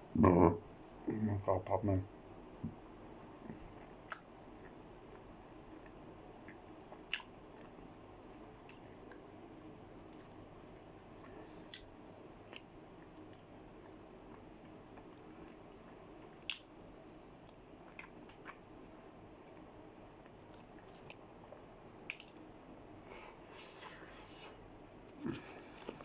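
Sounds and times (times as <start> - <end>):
soft chewing: 3.2 - 22.5, 23.1 - 26.0
wet mouth clicks: 4.1 - 4.3.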